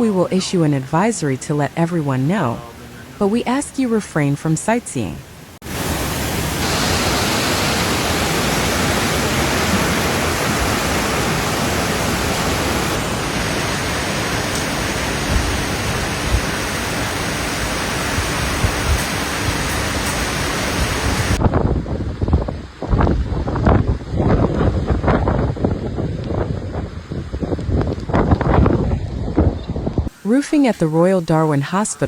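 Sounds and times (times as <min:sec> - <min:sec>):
heavy rain: 0:00.0 - 0:03.9, 0:05.2 - 0:30.4
strong wind roaring: 0:05.6 - 0:30.2.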